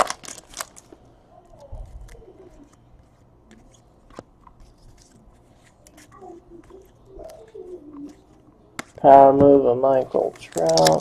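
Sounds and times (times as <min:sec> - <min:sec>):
cards tapping and rustling: 0:10.1 - 0:11.0.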